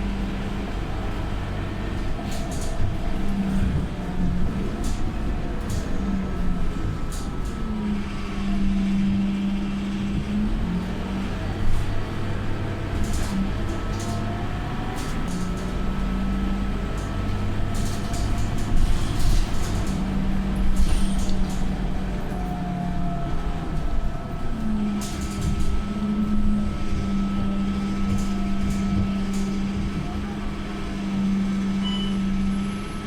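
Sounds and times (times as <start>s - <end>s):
bus engine running: 0.0s - 33.0s.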